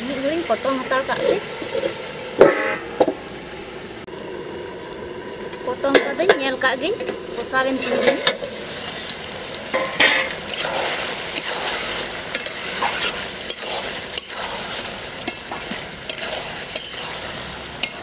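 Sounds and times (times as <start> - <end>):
chicken sizzling in a pot: 0.0 - 3.4, 4.1 - 18.0
spatula scraping a pot: 10.5 - 18.0.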